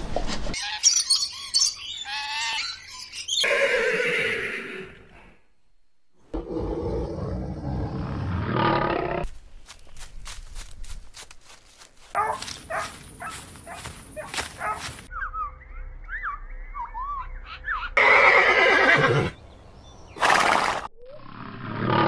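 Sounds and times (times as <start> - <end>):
horse whinnying: 3.4 - 5.0, 18.0 - 19.3.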